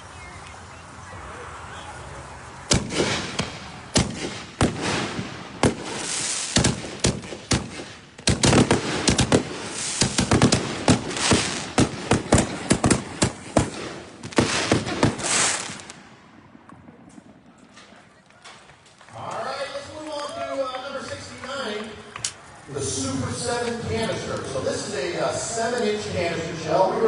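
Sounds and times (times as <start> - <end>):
crackling firework hiss: 0.0 - 16.0
firework launch and burst bangs: 2.7 - 16.1.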